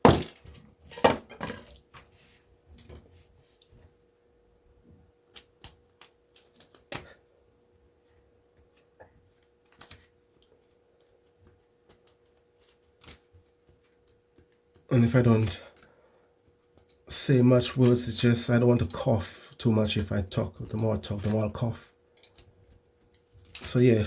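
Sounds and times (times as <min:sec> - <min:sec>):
faint steady hum: 0:00.0 - 0:24.0
wire clicks and snaps: 0:05.2 - 0:07.2, 0:08.5 - 0:15.9, 0:20.6 - 0:21.6.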